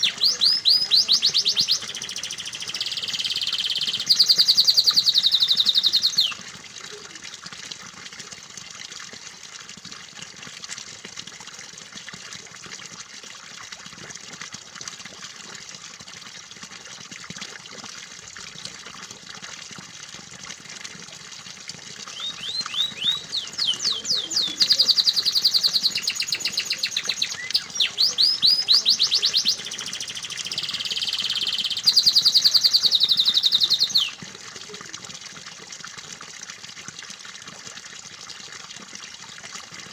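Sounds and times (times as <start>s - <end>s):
canary singing: 0.0s - 6.4s, 22.1s - 34.2s
water trickling: 0.0s - 39.9s.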